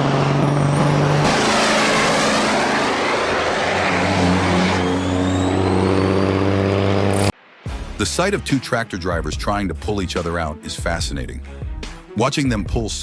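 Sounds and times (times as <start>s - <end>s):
motor vehicle engines running: 0.0s - 7.3s.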